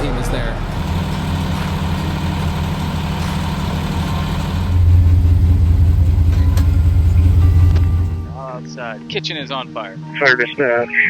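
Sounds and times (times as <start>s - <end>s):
diesel engine rumbling: 0.0s - 8.4s.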